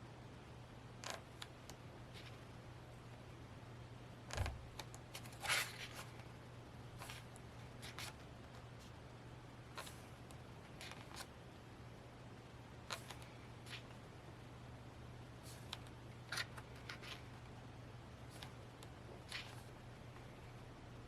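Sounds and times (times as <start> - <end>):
low steady hum: 0.0 - 21.0
paper pages rustling: 4.3 - 6.3, 7.0 - 8.9, 10.7 - 11.3, 15.4 - 17.3, 18.3 - 19.7.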